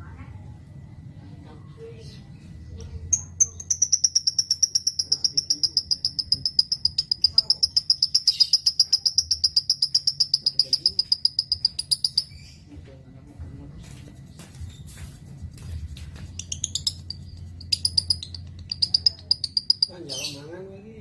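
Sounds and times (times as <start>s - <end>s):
faint chirps and clicks: 2.8s - 12.5s
lovebird rapid trill: 3.1s - 12.6s, 16.2s - 20.6s.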